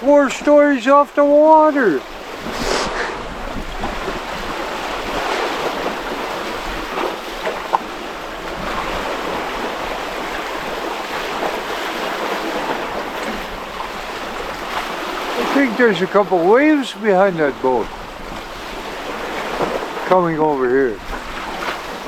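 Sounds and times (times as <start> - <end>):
rushing water: 0.0 - 22.0
wind buffeting microphone: 1.3 - 15.4.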